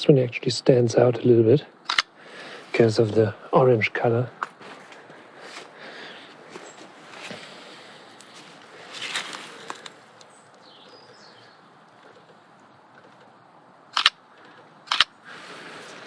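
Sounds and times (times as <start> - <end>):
camera shutter clicking: 1.9 - 2.1, 14.0 - 14.2, 14.9 - 15.1
faint bird chirps: 10.3 - 12.4.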